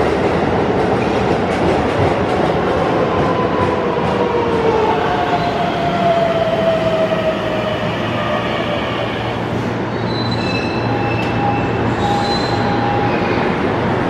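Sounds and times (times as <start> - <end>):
high squealing brakes: 9.9 - 13.6.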